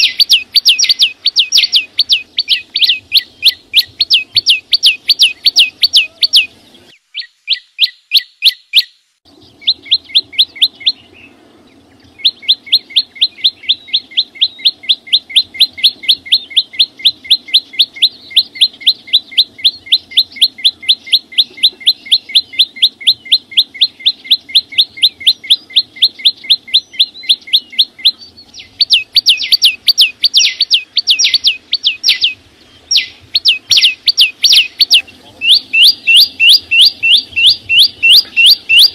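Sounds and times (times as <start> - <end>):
songbird singing rapid notes: 0.0 - 38.9.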